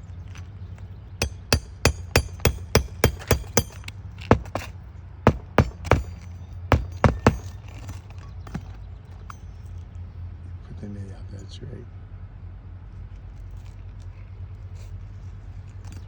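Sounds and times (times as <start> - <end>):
hammer striking nails: 1.2 - 8.8.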